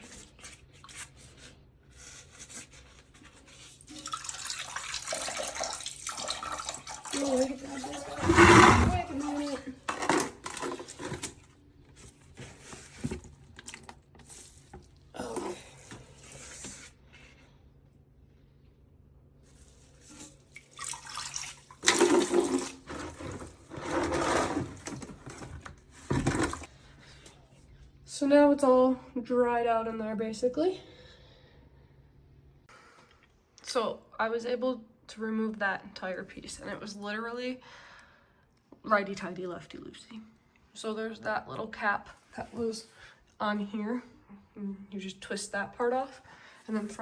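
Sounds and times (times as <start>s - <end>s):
sponge scraping porcelain tank: 0.0s - 17.0s, 19.5s - 26.7s
water splashing and trickling: 3.4s - 11.4s, 19.6s - 25.4s.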